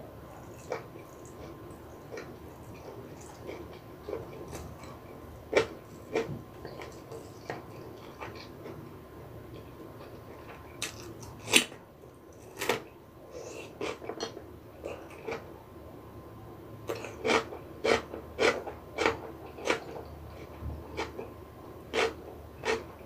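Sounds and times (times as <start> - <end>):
cucumber crunching being chewed: 10.4 - 11.7.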